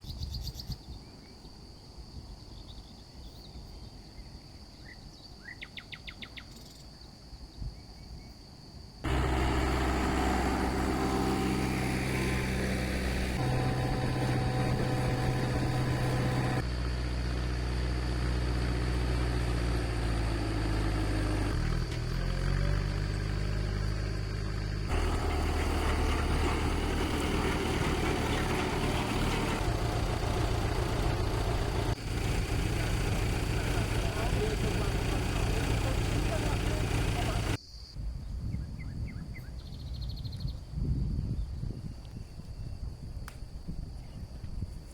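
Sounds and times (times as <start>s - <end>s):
tractor engine running: 9.0s - 37.6s.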